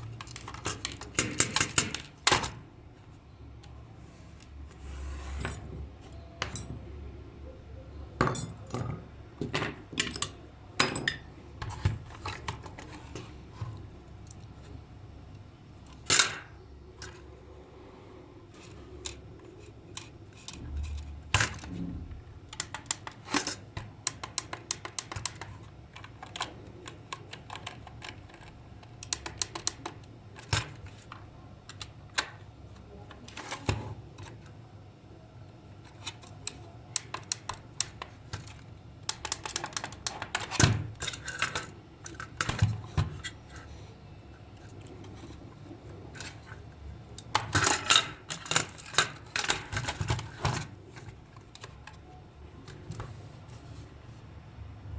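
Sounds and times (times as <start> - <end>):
clicks and taps of parts handled: 35.8 - 43.3.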